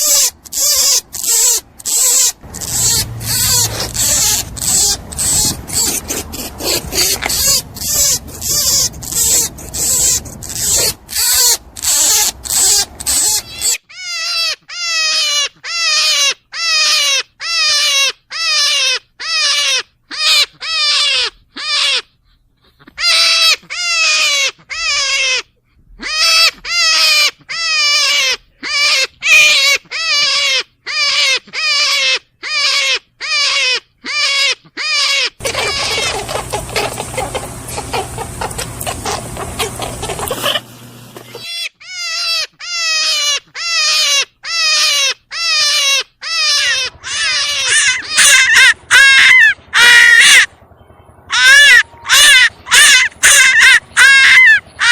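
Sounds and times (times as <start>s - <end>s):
rabbit puffing: 0.0s - 13.7s, 35.4s - 41.5s
rabbit crying: 0.0s - 50.6s, 51.2s - 54.9s.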